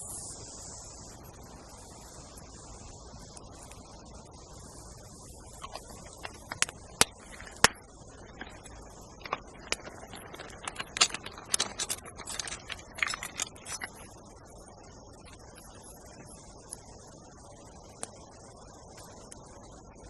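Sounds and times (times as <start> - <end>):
steady high hiss: 0.0 - 20.0
small hard objects clicking: 5.4 - 14.3.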